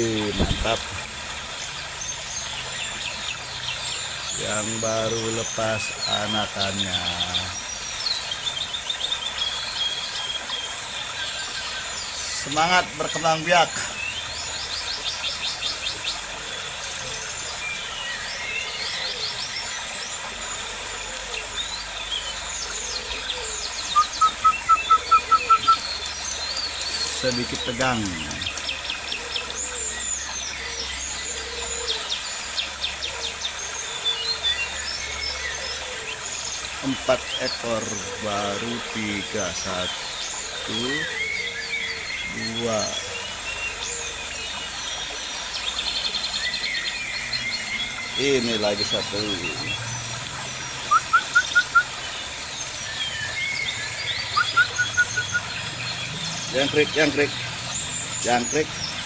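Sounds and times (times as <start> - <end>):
birds chirping and trilling: 0.0 - 59.0
bird calling short rising notes: 22.7 - 25.8, 50.8 - 52.0, 53.2 - 57.8.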